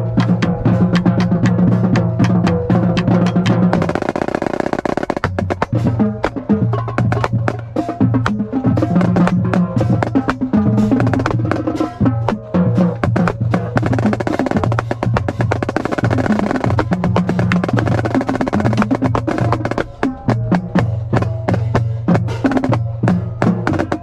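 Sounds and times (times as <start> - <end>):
marching snare drum rolls: 0.0 - 24.0
background music with bass line: 5.2 - 24.0.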